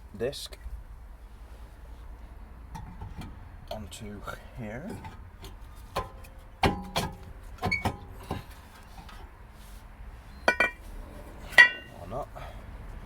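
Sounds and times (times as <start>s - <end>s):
brake disc knocking and clanking: 2.7s - 3.4s, 4.8s - 9.2s.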